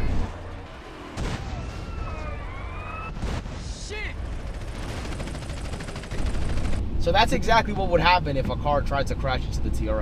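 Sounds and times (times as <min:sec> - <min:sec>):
sirens wailing: 0:00.0 - 0:03.2
explosions: 0:01.1 - 0:05.4.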